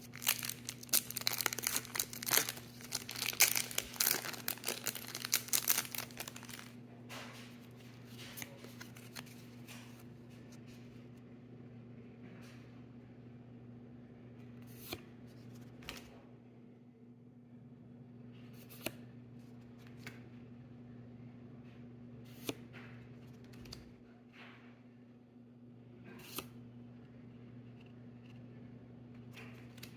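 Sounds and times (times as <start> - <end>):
trading cards being handled: 0.0 - 6.7, 8.1 - 10.0.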